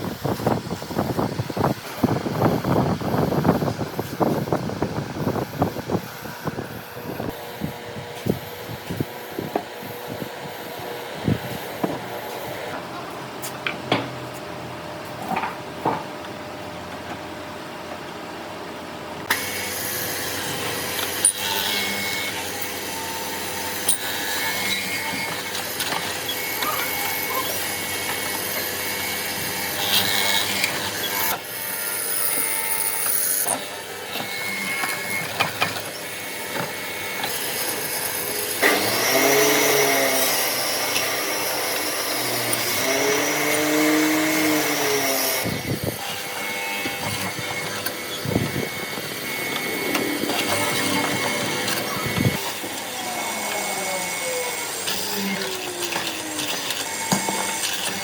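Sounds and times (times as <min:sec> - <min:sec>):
power tool working wood: 0:19.2 - 0:58.0.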